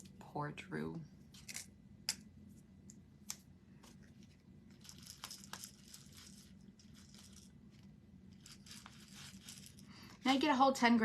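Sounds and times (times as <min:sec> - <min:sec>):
crinkling and rustling: 0:03.8 - 0:10.5.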